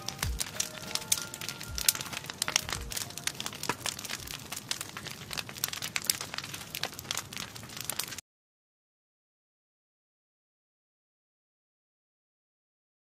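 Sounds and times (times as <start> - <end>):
campfire crackling and popping: 0.0 - 8.2.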